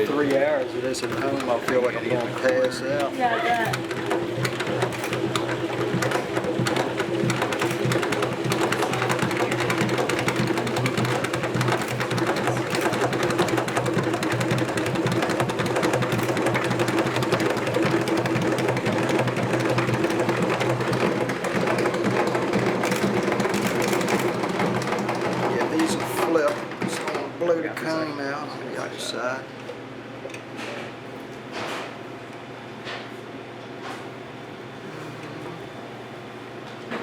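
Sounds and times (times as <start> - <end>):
honey extractor humming and rattling: 0.0 - 29.4.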